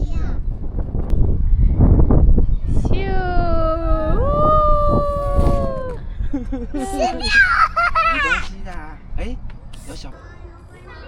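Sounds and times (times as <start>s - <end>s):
low rumble: 0.3s - 8.2s
excited high-pitched cry: 3.1s - 6.0s.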